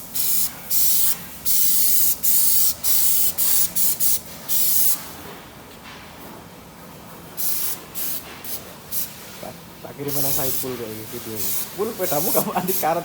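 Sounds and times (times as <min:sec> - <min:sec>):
paint spray hissing: 0:00.0 - 0:05.0, 0:07.4 - 0:09.2, 0:10.1 - 0:13.0.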